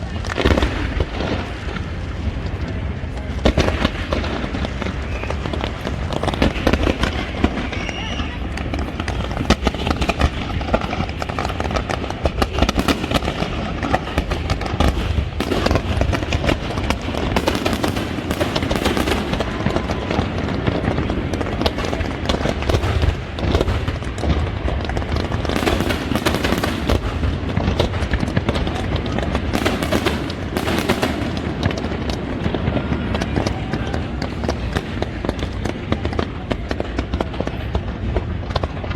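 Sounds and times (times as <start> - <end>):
fireworks bangs and crackles: 0.0 - 38.9
low rumble of explosions: 0.0 - 38.9.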